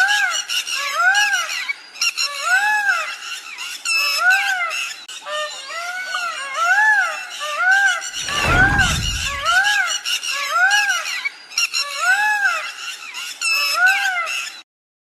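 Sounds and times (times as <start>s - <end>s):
deep rumble: 8.2s - 9.6s.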